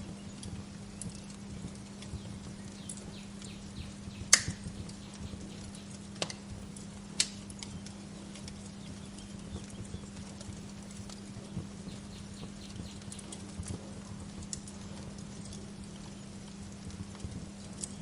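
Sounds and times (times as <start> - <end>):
steady low hum: 0.0 - 18.0
wood fire crackling: 0.0 - 18.0
sharp pops of fire: 0.4 - 8.6.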